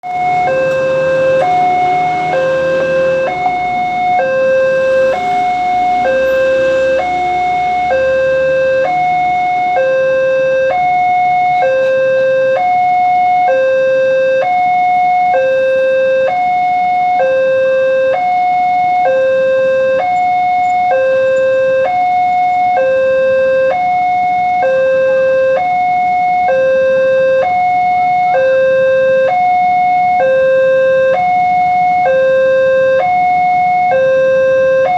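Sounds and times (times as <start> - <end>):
low engine rumble: 0.0 - 23.7
two-tone crossing alarm: 0.0 - 34.9.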